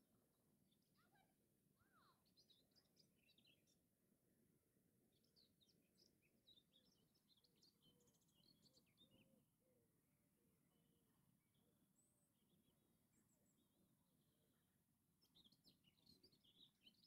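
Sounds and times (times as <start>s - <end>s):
faint birdsong: 0.0s - 17.0s.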